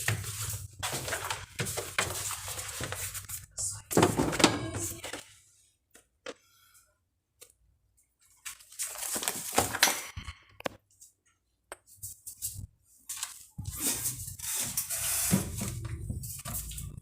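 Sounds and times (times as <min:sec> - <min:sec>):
rustling and clatter of objects: 0:00.0 - 0:03.4.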